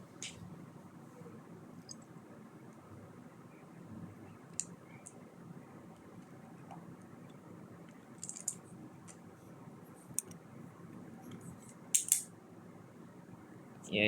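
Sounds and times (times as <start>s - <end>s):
plastic bricks clicking together: 8.2s - 9.2s, 12.0s - 12.2s.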